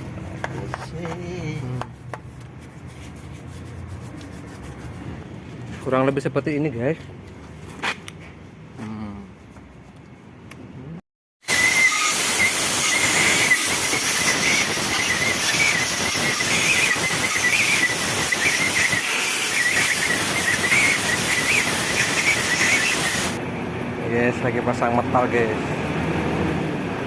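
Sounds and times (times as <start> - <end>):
wavering high whistle: 11.5 - 23.1
loud steady hiss: 11.5 - 23.4.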